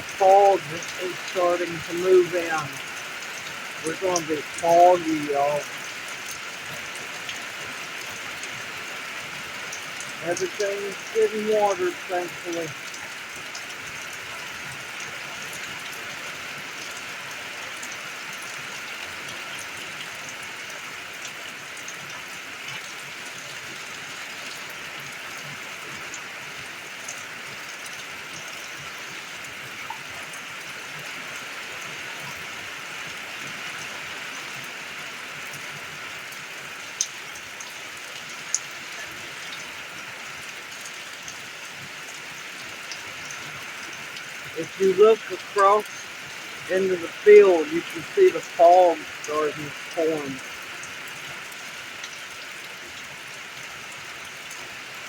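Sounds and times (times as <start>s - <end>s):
drops ticking: 0.0s - 2.8s, 3.8s - 5.7s
steady rain falling: 0.0s - 55.0s.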